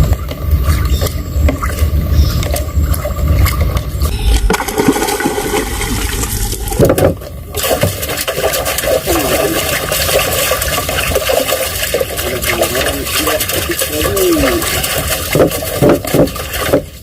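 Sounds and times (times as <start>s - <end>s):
heavy low rumble: 0.0s - 9.9s
water splashing and sloshing: 0.0s - 17.0s.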